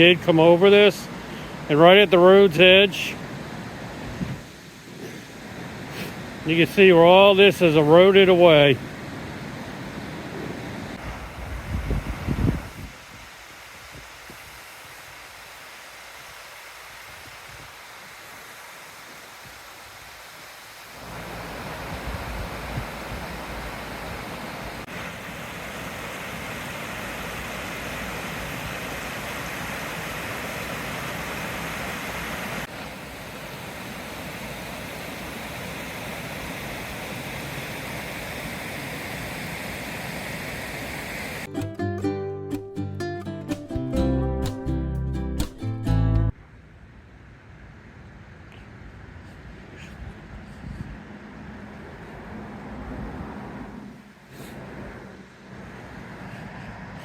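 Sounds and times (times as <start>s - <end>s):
floodwater rushing: 0.0s - 41.5s
strummed acoustic guitar music: 41.5s - 46.4s.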